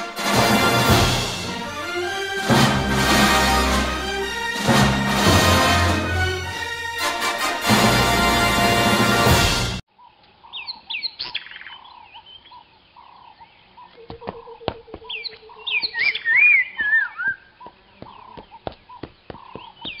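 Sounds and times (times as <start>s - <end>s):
music cue: 0.0s - 9.8s
birds chirping and twittering: 9.9s - 20.0s.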